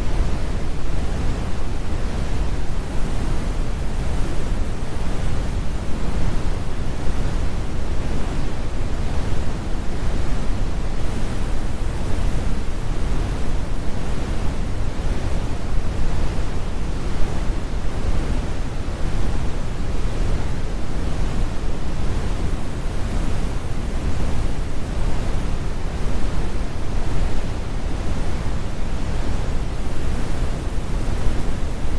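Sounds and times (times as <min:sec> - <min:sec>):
brown noise rumble: 0:00.0 - 0:31.9.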